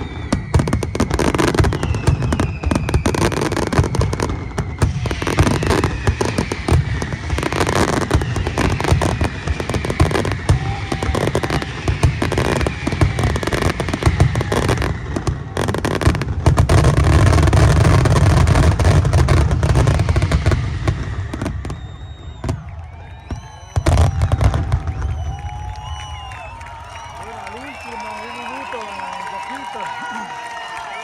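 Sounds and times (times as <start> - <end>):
fireworks bangs and crackling: 0.0 - 31.0
firework whistle falling in pitch: 19.7 - 31.0.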